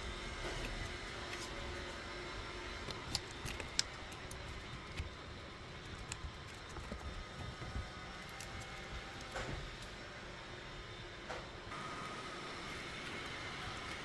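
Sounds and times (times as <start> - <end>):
low background hum: 0.0 - 14.0
light sharp clicks and taps: 2.9 - 10.0.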